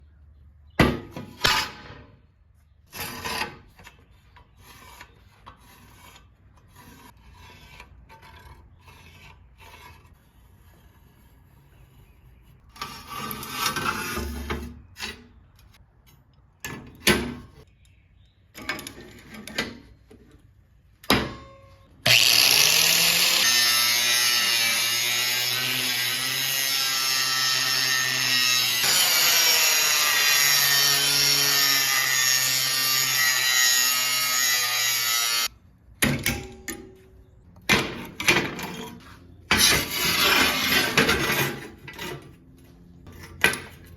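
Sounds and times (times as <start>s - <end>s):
power tool running: 22.0s - 35.5s.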